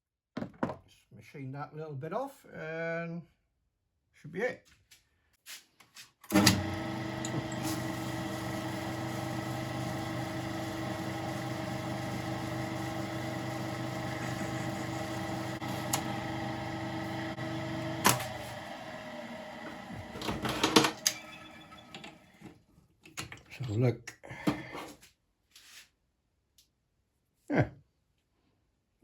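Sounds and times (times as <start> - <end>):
metal lathe running: 6.3 - 22.4.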